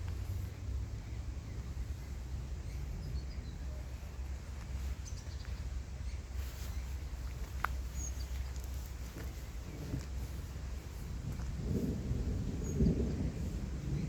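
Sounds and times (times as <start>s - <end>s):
steady low rumble: 0.0s - 14.0s
faint bird chirps: 0.1s - 9.9s.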